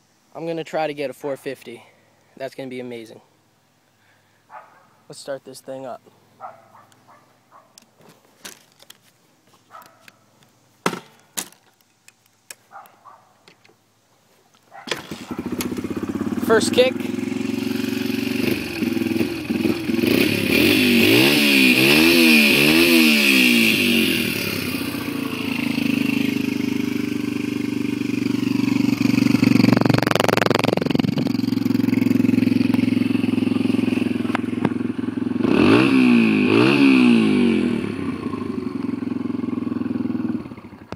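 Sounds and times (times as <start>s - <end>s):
dirt bike engine idling: 14.7s - 40.9s.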